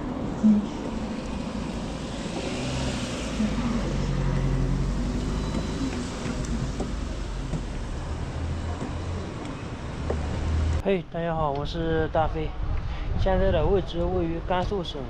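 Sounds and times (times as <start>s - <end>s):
vehicle passing: 0.0s - 10.8s.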